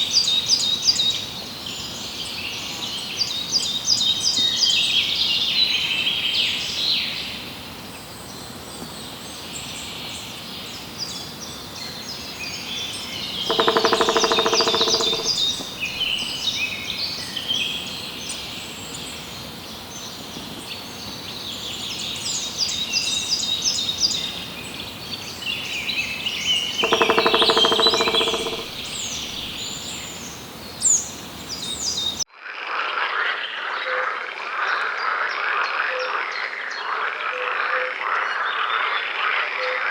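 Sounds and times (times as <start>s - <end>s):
small birds chirping: 8.8s - 32.2s
low buzzing call: 13.4s - 16.6s, 26.6s - 32.2s.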